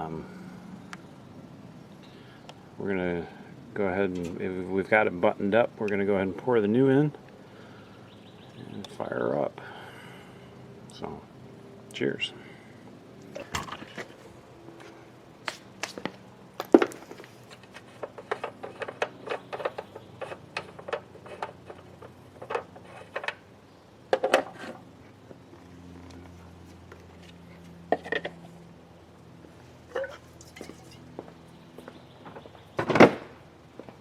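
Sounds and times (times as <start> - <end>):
faint steady hum: 0.0 - 34.0
clinks and knocks of metal tools: 29.9 - 31.3.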